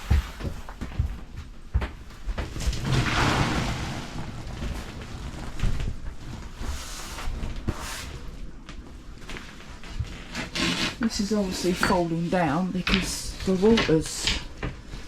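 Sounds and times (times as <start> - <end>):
handling knocks and bumps: 0.0 - 3.5
low rumble: 2.2 - 10.1
loud rushing rustle: 2.4 - 8.4.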